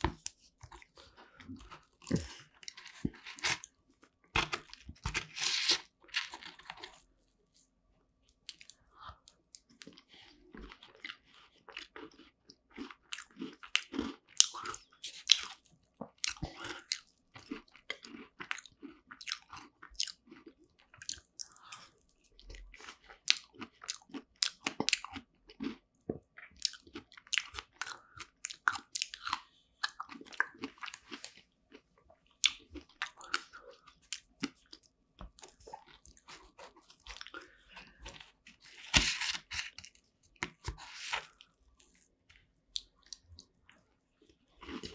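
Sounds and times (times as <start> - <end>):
crisp crust crunching: 0.0 - 3.7, 4.4 - 7.1, 32.5 - 42.1
chewing and biting tart: 8.4 - 42.1, 44.5 - 44.9.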